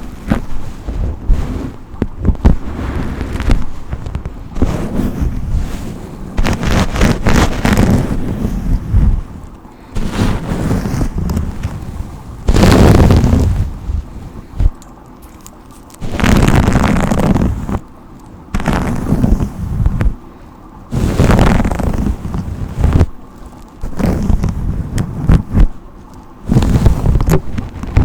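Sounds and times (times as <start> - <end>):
brush stroke swishes: 4.6 - 9.4, 10.0 - 14.7.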